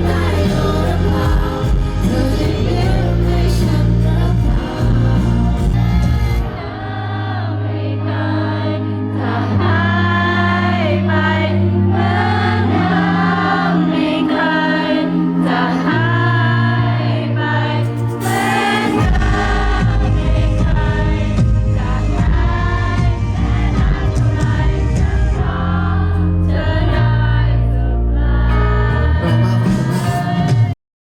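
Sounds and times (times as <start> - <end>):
long held bass notes: 0.0 - 30.8
song with singing voices: 0.0 - 30.8
music beat: 17.8 - 26.3, 29.2 - 30.8.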